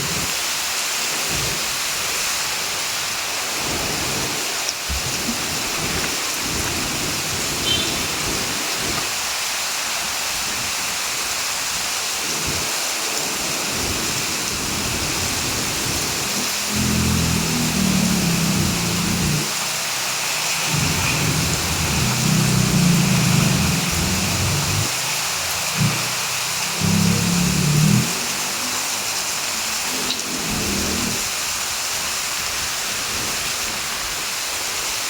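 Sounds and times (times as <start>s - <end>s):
heavy rain hissing: 0.0s - 35.0s
low uneven rumble: 20.7s - 24.9s.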